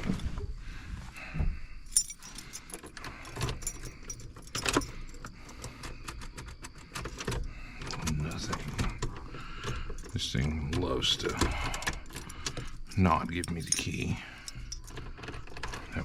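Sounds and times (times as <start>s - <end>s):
keys jingling on a keyring: 1.9s - 5.6s, 9.7s - 15.4s.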